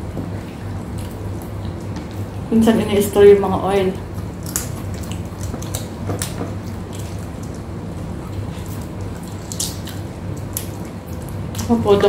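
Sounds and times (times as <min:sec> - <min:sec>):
steady low hum: 0:00.0 - 0:12.0
wet mouth clicks and chewing: 0:04.1 - 0:11.7.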